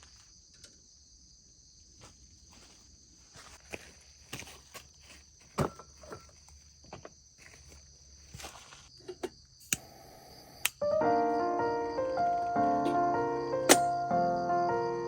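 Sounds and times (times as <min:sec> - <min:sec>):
insects chirring: 0:00.0 - 0:15.0
music: 0:10.8 - 0:15.0.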